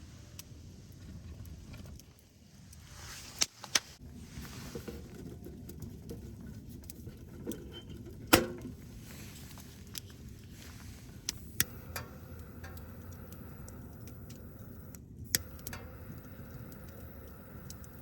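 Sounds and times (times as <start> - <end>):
low steady rumble: 8.1 - 18.0
sharp clicks and knocks: 11.3 - 18.0.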